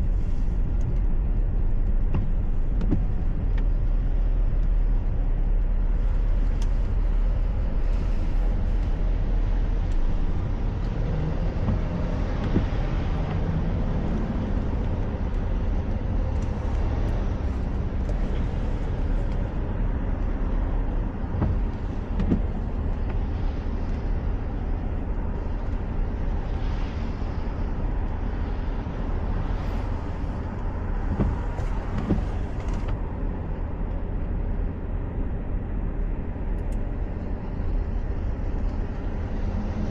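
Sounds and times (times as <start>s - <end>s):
car driving on wet highway: 0.0s - 39.9s.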